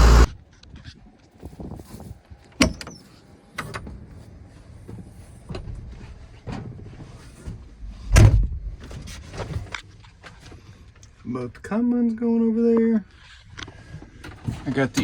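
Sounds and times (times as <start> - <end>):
tractor engine running: 0.0 - 0.4.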